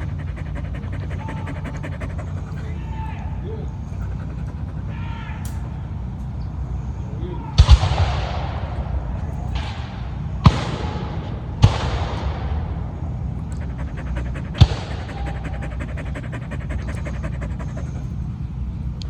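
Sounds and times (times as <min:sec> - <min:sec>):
dog panting: 0:00.0 - 0:06.3, 0:12.8 - 0:19.0.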